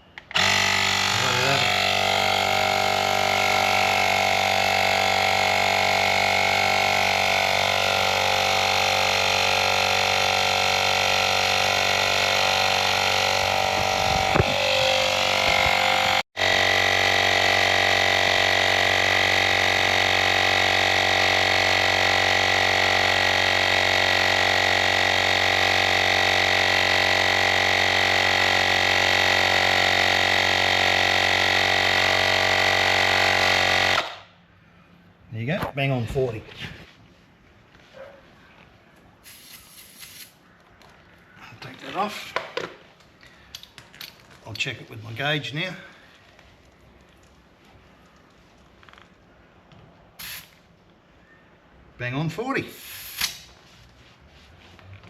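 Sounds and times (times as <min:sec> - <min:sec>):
tyre inflator compressor humming: 0:00.1 - 0:34.3.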